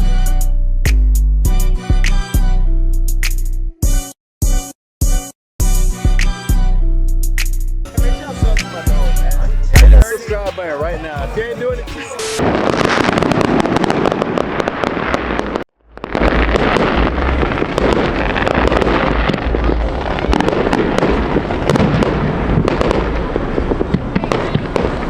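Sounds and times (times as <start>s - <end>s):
deep fireworks booms: 9.8s - 10.0s, 12.4s - 25.0s
fireworks crackling and banging: 12.1s - 25.0s.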